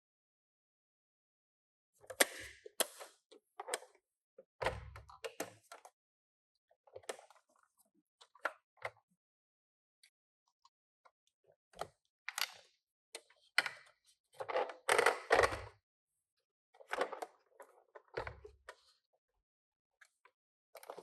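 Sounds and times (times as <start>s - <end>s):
toy cars and packaging handled: 16.8s - 19.0s.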